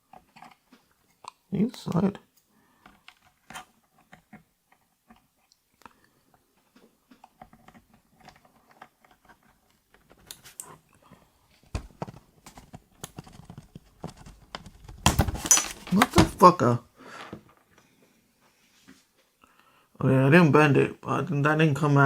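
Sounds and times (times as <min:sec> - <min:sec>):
small plastic clicks and scrapes: 0:00.1 - 0:01.4, 0:02.8 - 0:05.6, 0:06.6 - 0:10.8.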